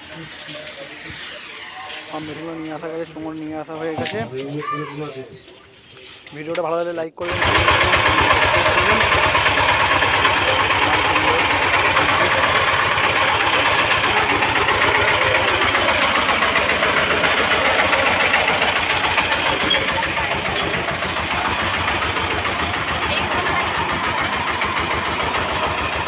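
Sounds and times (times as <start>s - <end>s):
engine running with knocking: 7.2s - 26.0s.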